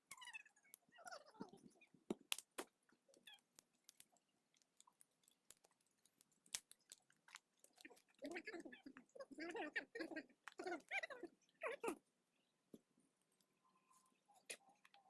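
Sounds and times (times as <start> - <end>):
sharp clicks and crunches: 0.1 - 9.1.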